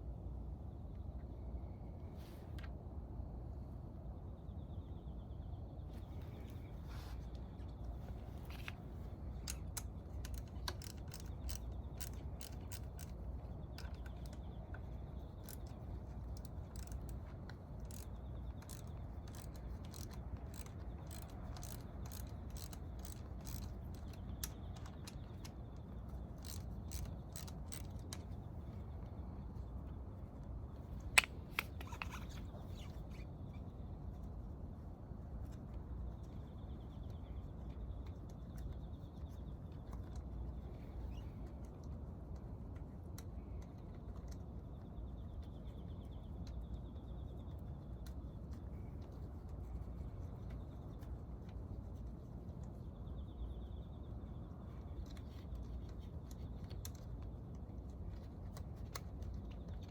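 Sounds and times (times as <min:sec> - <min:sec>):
ratchet wrench clicking: 0:09.4 - 0:13.2, 0:15.4 - 0:24.9, 0:26.3 - 0:28.2.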